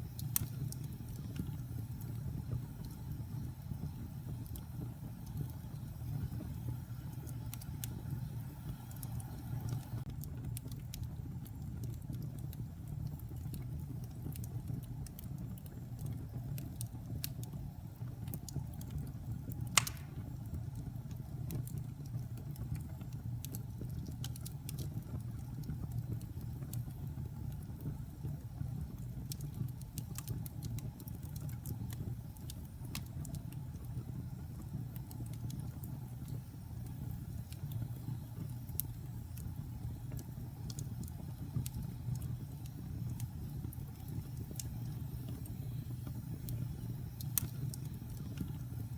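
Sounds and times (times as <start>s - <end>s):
wood fire crackling: 0.0s - 48.9s
loud pop from fire: 19.7s - 20.4s.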